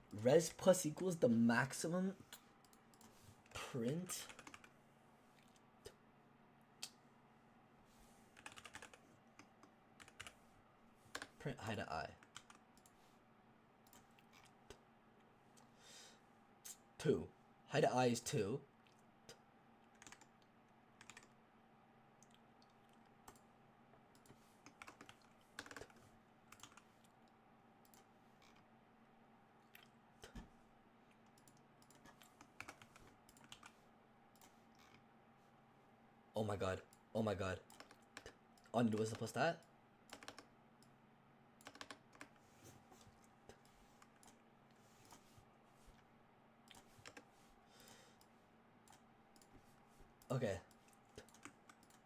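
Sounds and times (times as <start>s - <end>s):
faint steady hum: 0.0s - 52.0s
keyboard typing: 4.2s - 4.7s, 8.4s - 10.4s, 12.2s - 12.9s, 19.9s - 20.4s, 21.0s - 21.4s, 24.1s - 27.1s, 31.3s - 33.8s, 37.7s - 39.4s, 40.1s - 40.5s, 41.6s - 42.4s, 46.7s - 47.9s, 50.7s - 52.0s.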